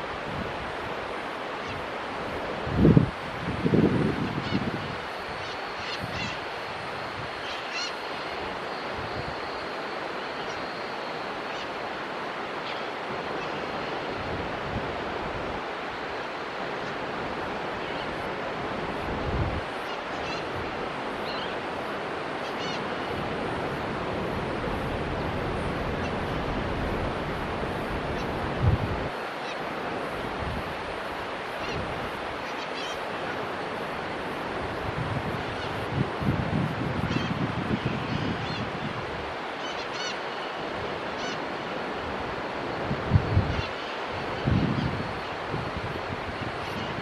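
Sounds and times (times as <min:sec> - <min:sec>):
steady rushing hiss: 0:00.0 - 0:47.0
wind buffeting microphone: 0:01.9 - 0:07.4, 0:23.1 - 0:29.2, 0:34.1 - 0:39.5, 0:42.0 - 0:47.0.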